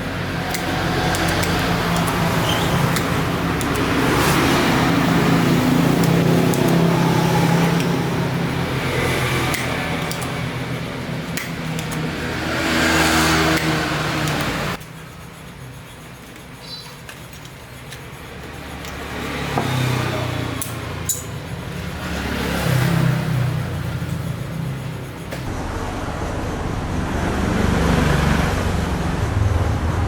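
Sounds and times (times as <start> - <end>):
motor clicking: 0.3 - 14.8.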